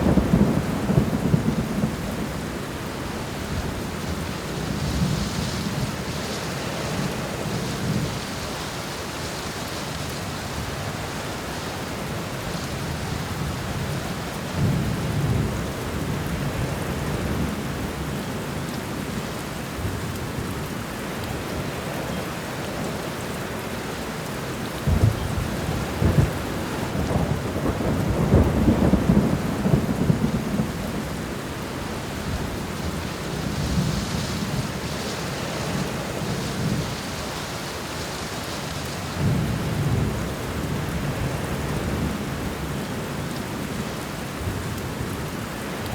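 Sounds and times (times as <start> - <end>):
low rolling thunder: 0.0 - 8.3, 24.8 - 37.9, 38.6 - 43.7
steady rain: 0.0 - 45.9.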